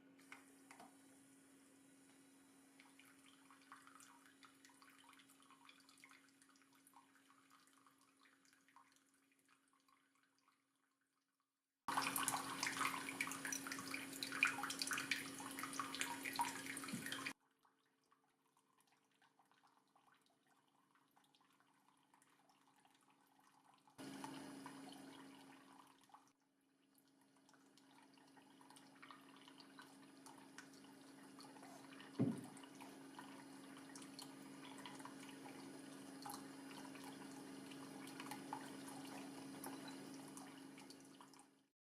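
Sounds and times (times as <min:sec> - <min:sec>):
water splashing and trickling: 0:02.8 - 0:10.7, 0:11.9 - 0:26.3, 0:26.9 - 0:41.6
water pump humming: 0:11.9 - 0:17.4, 0:24.0 - 0:25.8, 0:28.5 - 0:41.4
knock: 0:32.2 - 0:32.5.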